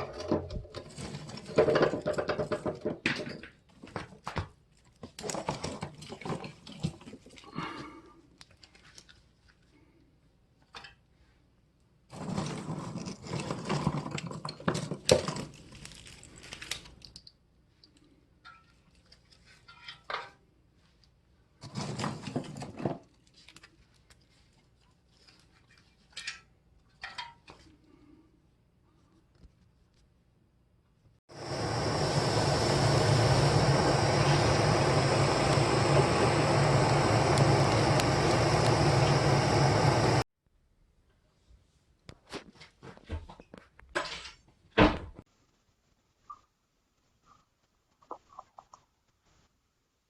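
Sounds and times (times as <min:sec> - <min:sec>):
twigs rustling and snapping: 0:15.1 - 0:17.4, 0:23.1 - 0:26.4.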